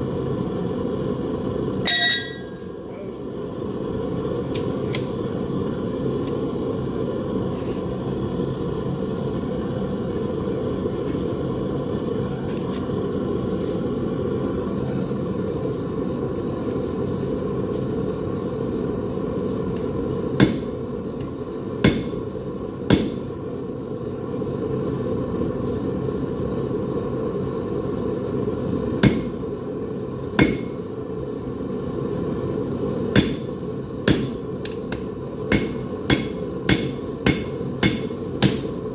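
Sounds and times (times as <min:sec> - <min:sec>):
hammer striking metal on anvil: 0:01.9 - 0:02.7, 0:20.4 - 0:20.8, 0:21.8 - 0:22.3, 0:22.9 - 0:23.3, 0:29.0 - 0:29.4, 0:30.4 - 0:30.8, 0:33.2 - 0:38.8.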